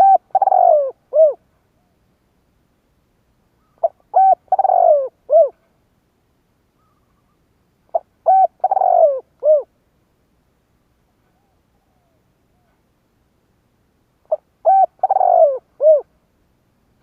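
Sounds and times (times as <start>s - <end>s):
dove cooing: 0.0s - 1.4s, 3.6s - 5.6s, 6.8s - 9.7s, 14.3s - 16.1s.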